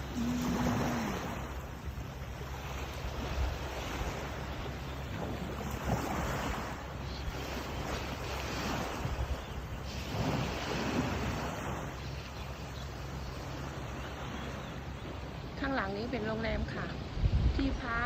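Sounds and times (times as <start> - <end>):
sea waves washing on beach: 0.0 - 18.0
wind buffeting microphone: 15.6 - 18.0.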